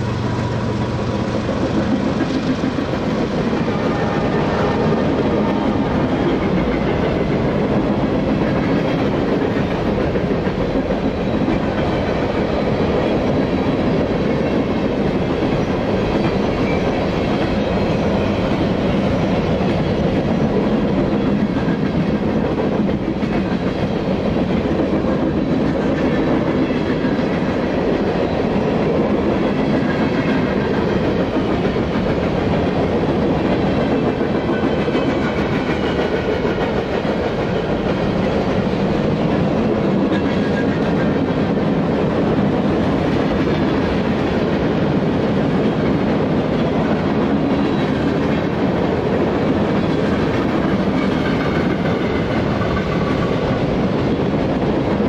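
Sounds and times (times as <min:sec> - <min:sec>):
freight train cars rolling: 0:00.0 - 0:55.0
wheels clickety-clack on rail joints: 0:00.0 - 0:55.0.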